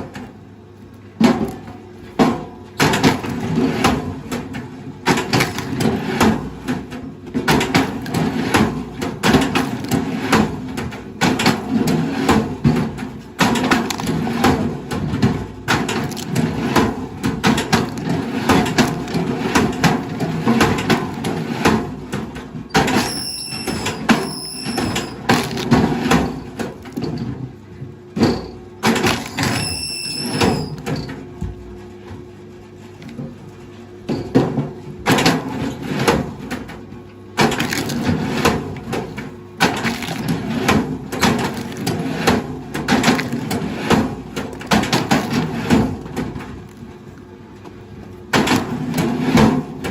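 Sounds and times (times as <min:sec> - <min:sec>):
brief high squeals: 0:23.0 - 0:25.2, 0:29.5 - 0:30.8
wood cracking and crunching: 0:37.5 - 0:38.0.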